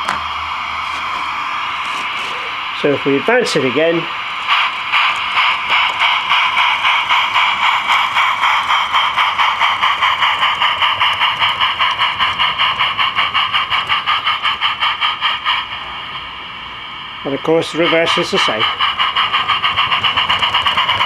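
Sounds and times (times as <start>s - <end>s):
model locomotive steam chuffs: 0.0s - 21.0s.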